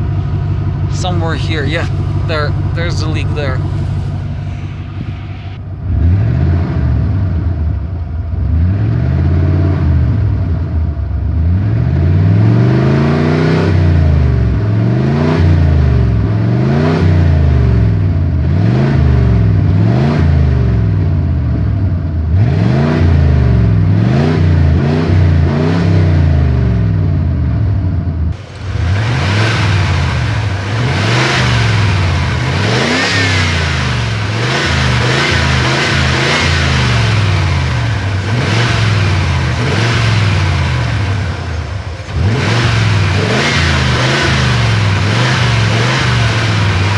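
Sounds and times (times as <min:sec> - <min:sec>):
engine revving: 0:00.0 - 0:46.9.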